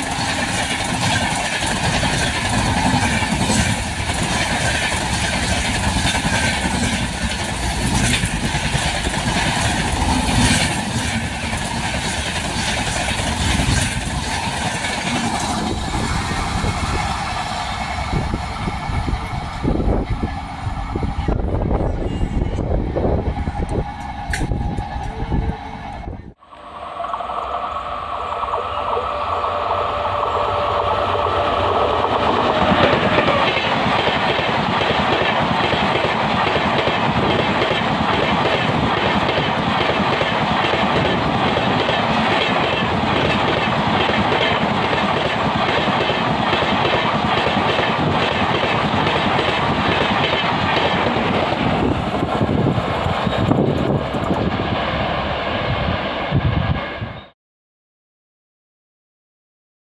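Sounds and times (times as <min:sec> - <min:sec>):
train rumble: 0:00.0 - 0:57.3
train horn: 0:20.8 - 0:33.7.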